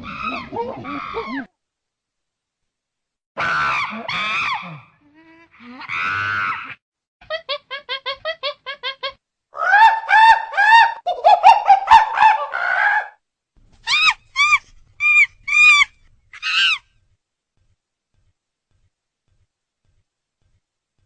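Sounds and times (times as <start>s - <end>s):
chimpanzee calling: 0.0s - 1.5s, 8.0s - 13.2s, 13.9s - 16.8s.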